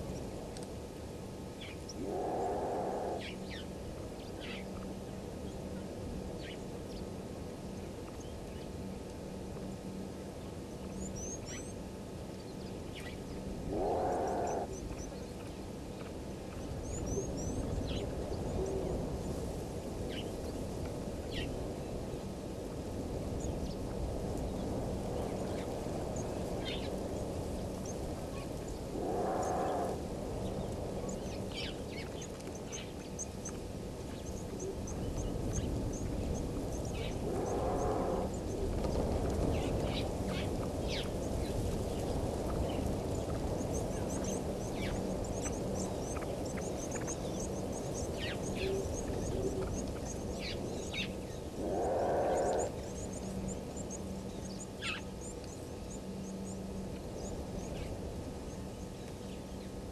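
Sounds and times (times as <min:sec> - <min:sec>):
outdoor background noise: 0:00.0 - 0:59.9
animal call: 0:02.0 - 0:03.6, 0:13.7 - 0:14.8, 0:28.9 - 0:30.0, 0:37.0 - 0:38.4, 0:51.6 - 0:53.0.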